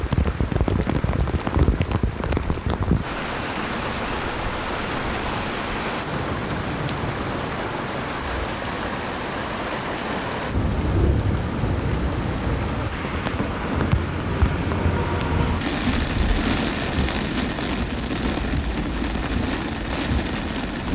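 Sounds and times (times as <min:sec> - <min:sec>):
torrential rain pouring: 0:00.0 - 0:20.9
low gusty rumbling: 0:10.5 - 0:20.9.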